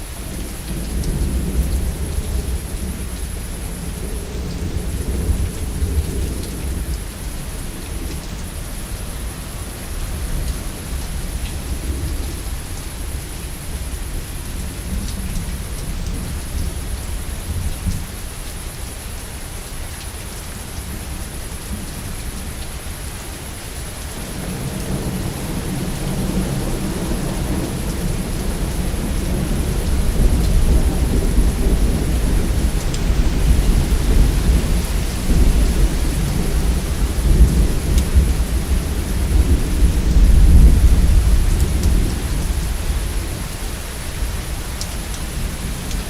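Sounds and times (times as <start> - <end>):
steady rain: 0.0 - 46.0
low rolling thunder: 24.1 - 46.0.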